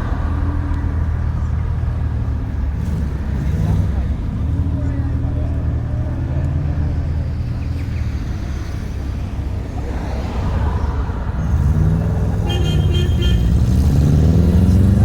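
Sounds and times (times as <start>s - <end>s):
car engine revving: 10.2s - 15.0s.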